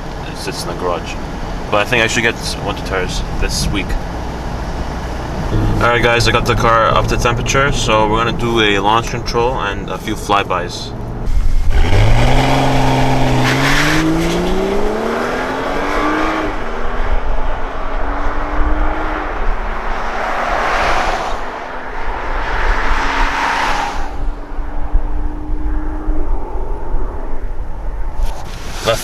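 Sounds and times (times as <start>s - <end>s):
car engine accelerating hard: 0.0s - 23.7s.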